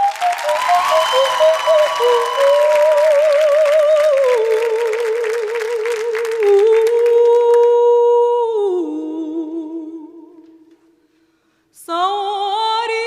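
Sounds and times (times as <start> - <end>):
applause: 0.0 - 7.8
woman singing wordless vocalise: 1.1 - 11.0, 11.7 - 13.0.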